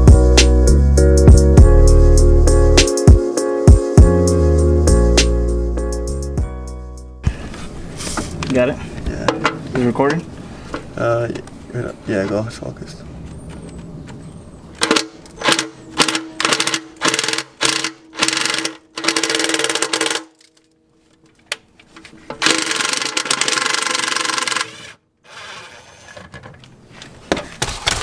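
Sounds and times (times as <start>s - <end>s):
power tool bursts: 14.8s - 20.3s, 22.4s - 26.1s.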